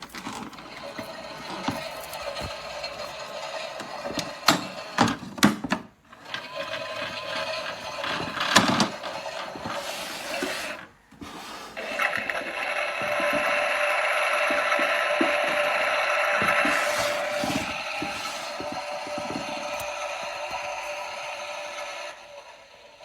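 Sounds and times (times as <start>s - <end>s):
toy washing machine whirring: 0.0s - 23.0s
toy handling clicks and knocks: 11.7s - 21.4s.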